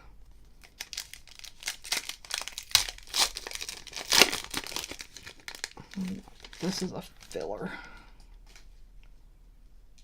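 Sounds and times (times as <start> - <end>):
wrapper crinkling and tearing: 0.5 - 7.7.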